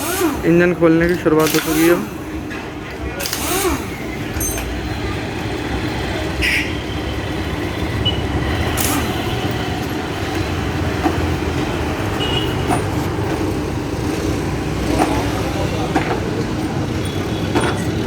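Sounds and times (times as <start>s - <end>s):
road traffic rumble: 0.0s - 18.0s
metallic tool clicks: 1.1s - 2.0s.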